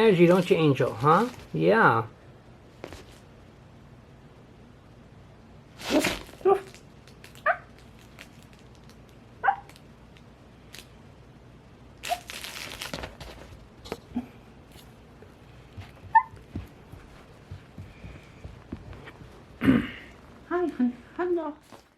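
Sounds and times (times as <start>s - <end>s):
rustling scuffle: 0.0s - 1.8s, 2.7s - 3.3s, 5.8s - 6.8s, 12.2s - 20.5s, 21.6s - 21.9s
puppy barking: 7.4s - 7.7s, 9.4s - 9.7s, 16.1s - 16.5s.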